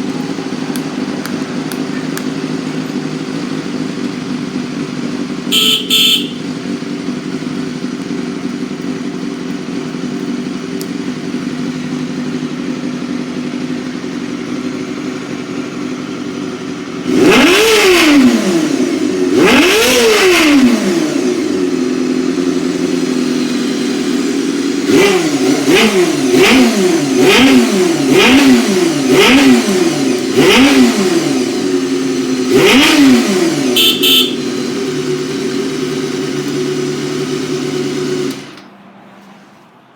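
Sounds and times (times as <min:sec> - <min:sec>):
motorcycle engine idling and revving: 0:00.0 - 0:39.9
short sharp sounds: 0:05.5 - 0:06.4, 0:33.8 - 0:34.4.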